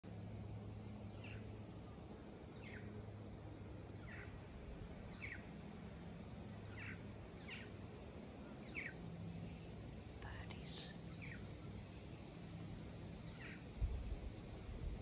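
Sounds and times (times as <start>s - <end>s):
faint low hum: 0.0s - 15.0s
bird calling: 4.0s - 4.4s, 6.7s - 7.7s, 13.2s - 13.7s.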